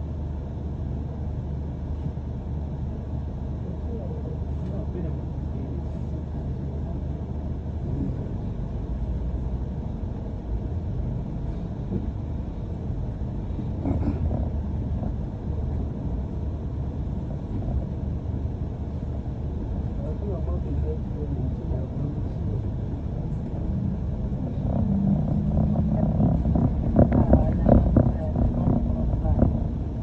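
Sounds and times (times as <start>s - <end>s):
bus engine and tyres rumbling: 0.0s - 30.0s.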